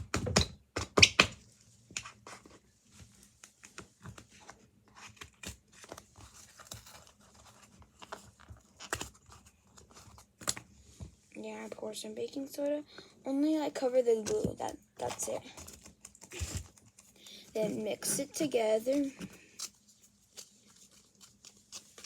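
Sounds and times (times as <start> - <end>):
paper package tearing: 18.9 - 22.0.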